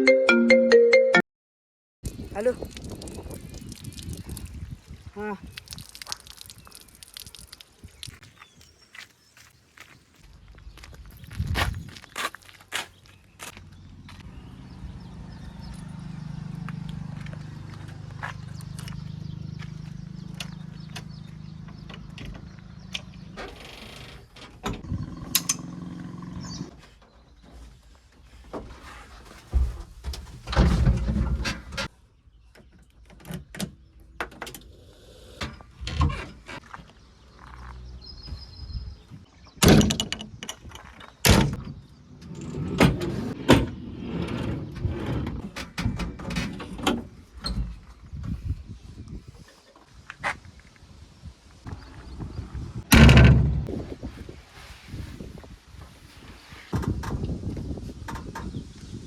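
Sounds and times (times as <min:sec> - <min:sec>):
diesel engine running: 0:13.6 - 0:23.4, 0:24.9 - 0:26.7.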